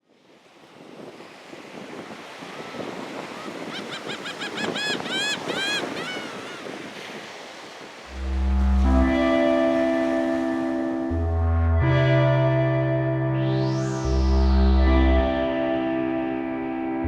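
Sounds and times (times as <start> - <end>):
surf and wind rushing: 0.0 - 17.0
low music tone: 8.1 - 17.0.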